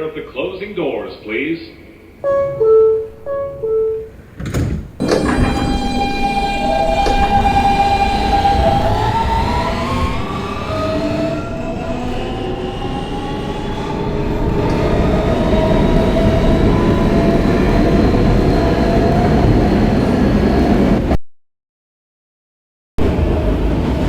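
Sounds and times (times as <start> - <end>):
subway traction motor whine: 0.0 - 21.1, 23.0 - 24.0
train wheels rumbling on rail: 4.3 - 21.1, 23.0 - 24.0.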